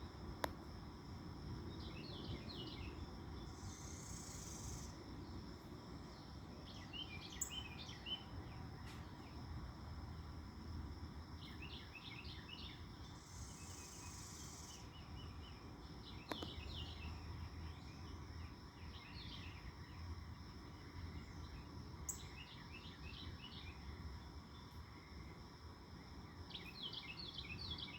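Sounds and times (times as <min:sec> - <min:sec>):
high insect trill: 0:00.0 - 0:27.9
small birds chirping: 0:01.6 - 0:05.4, 0:06.0 - 0:09.6, 0:11.4 - 0:20.1, 0:26.3 - 0:27.9.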